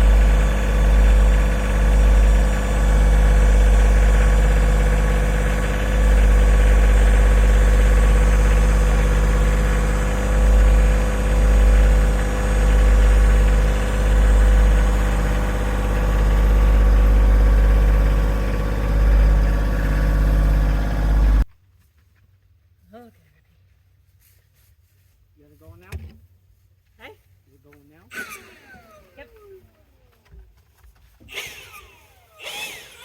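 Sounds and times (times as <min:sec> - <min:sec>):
engine idling: 0:00.0 - 0:21.5, 0:28.1 - 0:30.4, 0:31.3 - 0:33.0.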